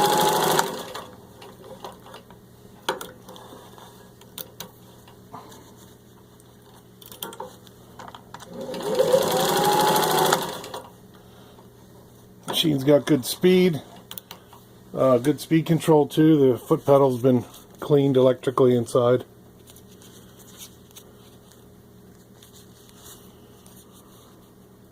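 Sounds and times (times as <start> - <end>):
sewing machine stitching: 0.0 - 1.8, 8.5 - 10.9.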